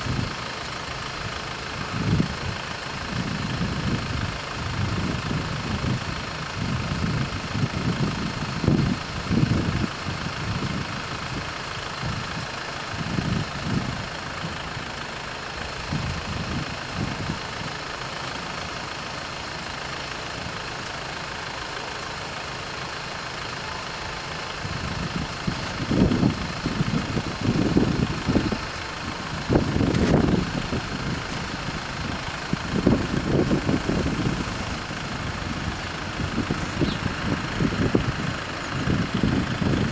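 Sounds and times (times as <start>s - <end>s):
vehicle engines running: 0.0s - 39.9s
crossing warning bells ringing: 17.8s - 39.6s
low rumbling: 23.4s - 39.9s.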